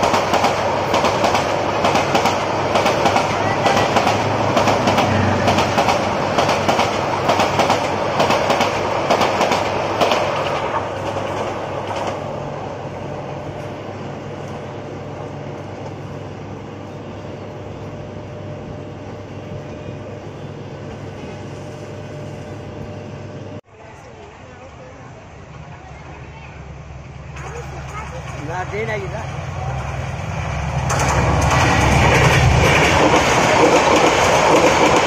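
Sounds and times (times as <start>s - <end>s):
train wheels clacking over rail joints: 0.0s - 12.2s, 30.6s - 35.0s.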